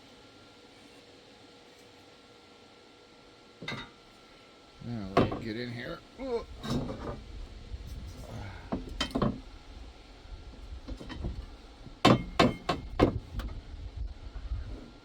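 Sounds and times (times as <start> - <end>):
sharp metallic knocks: 12.0 - 13.2.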